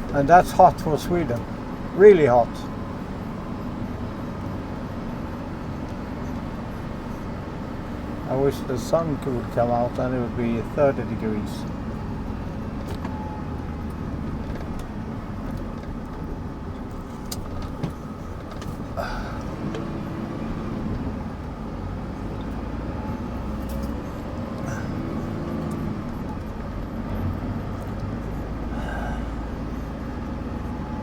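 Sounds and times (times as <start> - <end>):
truck engine and road rumble: 0.0 - 31.0
light clicks and rattles: 13.8 - 19.9.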